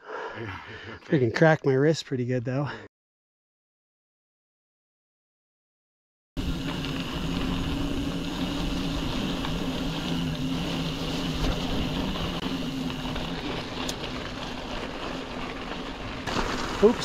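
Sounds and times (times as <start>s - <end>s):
steady low hum: 6.4s - 16.3s
bike tyre noise: 6.4s - 17.0s.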